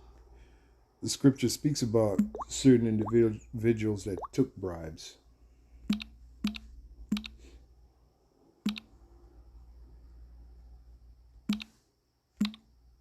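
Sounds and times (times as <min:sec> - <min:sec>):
faint low hum: 0:00.0 - 0:13.0
computer clicks: 0:05.9 - 0:07.4, 0:08.7 - 0:08.9, 0:11.5 - 0:11.8, 0:12.4 - 0:12.7.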